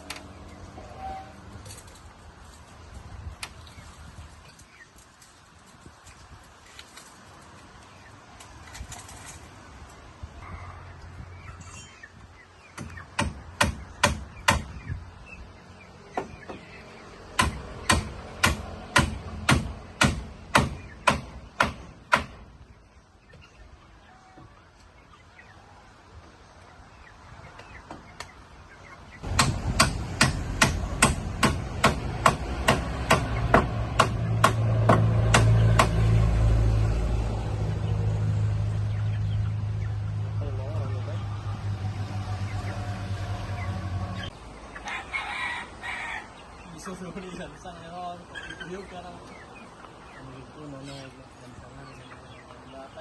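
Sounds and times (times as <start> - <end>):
hammer driving nails: 29.3 - 35.9.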